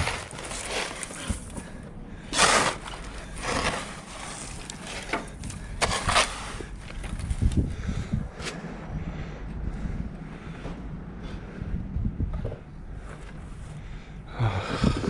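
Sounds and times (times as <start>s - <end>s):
scuffs in snow: 0.0s - 1.8s, 2.4s - 5.1s
wind rumbling on microphone: 0.0s - 15.0s.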